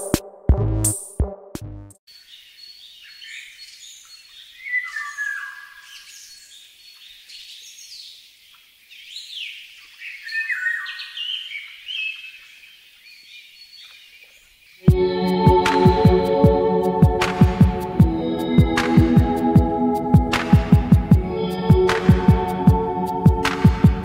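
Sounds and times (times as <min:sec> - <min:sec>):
wild birds chirping and whistling: 0:02.2 - 0:08.3, 0:08.9 - 0:14.8.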